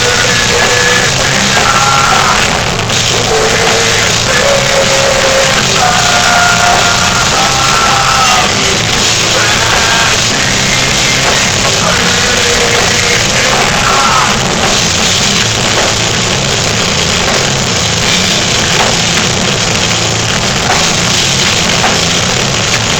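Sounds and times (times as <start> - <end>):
shouted vocals: 0.0 - 15.1
metal band playing live: 0.0 - 22.9.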